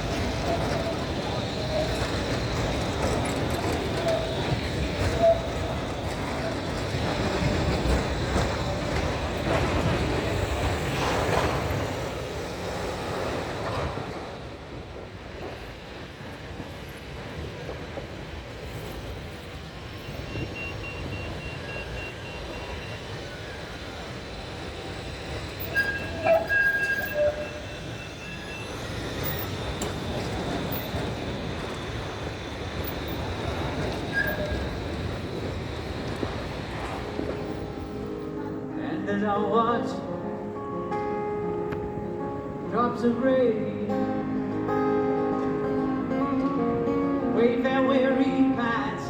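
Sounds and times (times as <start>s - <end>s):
tram wheel clicks: 0.0s - 10.7s, 25.4s - 38.1s
tram wheels rumbling on rail: 0.0s - 49.0s.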